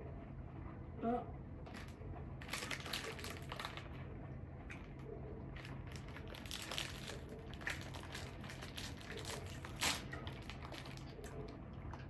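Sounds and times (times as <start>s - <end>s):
plastic snack wrapper crinkling: 1.7s - 4.0s, 5.6s - 12.0s.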